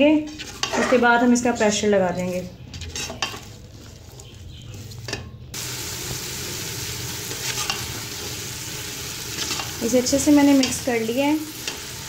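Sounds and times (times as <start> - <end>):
spatula scraping: 0.2 - 5.5, 7.2 - 8.3
vegetables sizzling in a pot: 5.0 - 12.0.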